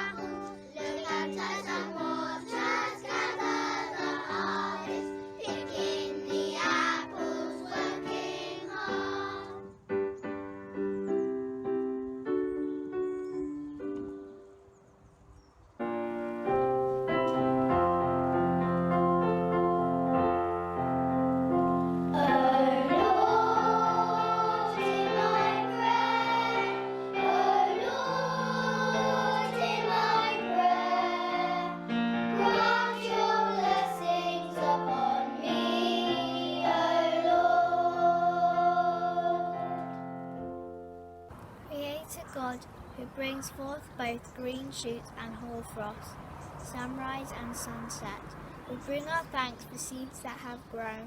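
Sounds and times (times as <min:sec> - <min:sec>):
children singing: 0:00.0 - 0:09.7, 0:22.1 - 0:40.1
keyboard chords: 0:00.0 - 0:15.1, 0:15.8 - 0:42.2.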